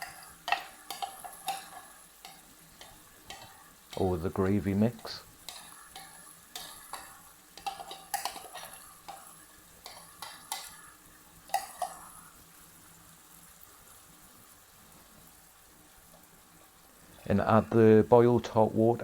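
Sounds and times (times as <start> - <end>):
utensil scraping a pan: 0.0 - 10.8
chicken sizzling: 0.0 - 19.0.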